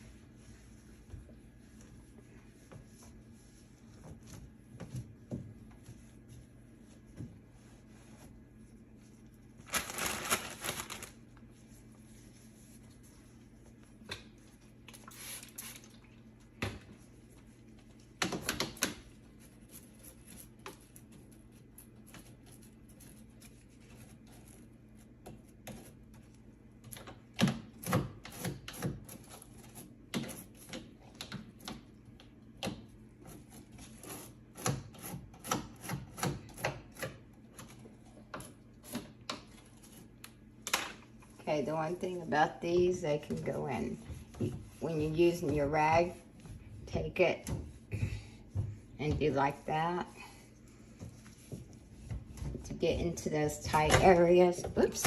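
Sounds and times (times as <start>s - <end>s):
scrubbing a greasy surface: 0.0s - 9.6s, 10.6s - 16.0s, 19.0s - 26.5s, 41.4s - 54.6s.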